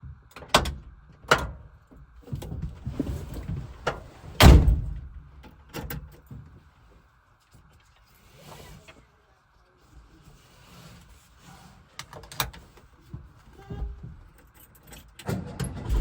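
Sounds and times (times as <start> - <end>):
heavy door slam: 4.4 - 5.1, 15.7 - 16.0.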